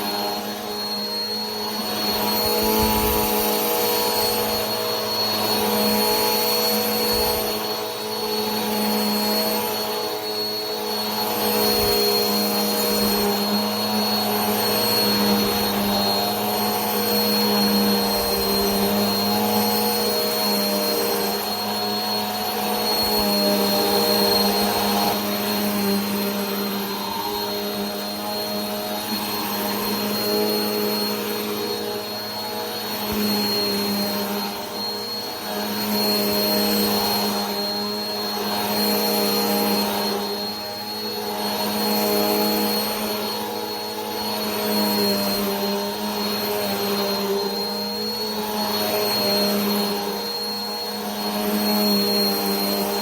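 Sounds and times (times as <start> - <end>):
vacuum cleaner running: 0.0 - 53.0.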